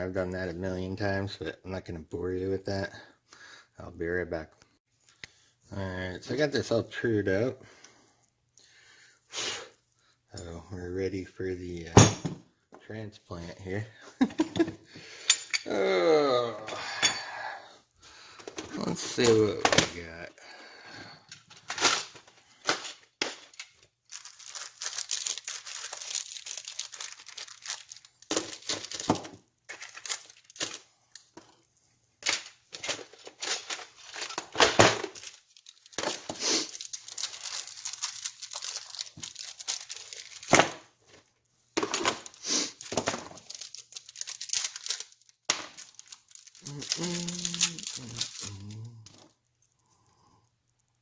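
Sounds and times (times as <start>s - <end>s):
packaging being torn and crinkled: 21.8s - 31.1s, 32.4s - 40.9s, 41.9s - 49.4s.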